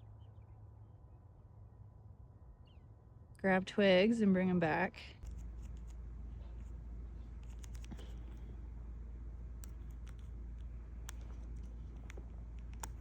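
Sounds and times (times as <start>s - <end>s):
steady low rumble: 5.2s - 13.0s
faint sharp clicks: 9.6s - 13.0s.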